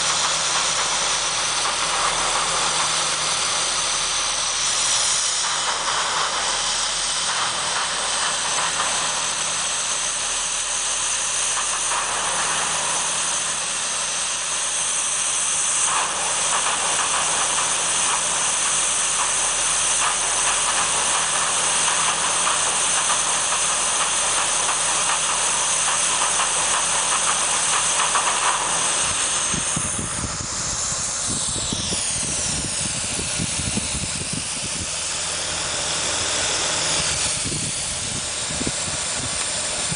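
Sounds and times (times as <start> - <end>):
low fluttering rumble: 20.0 - 39.9.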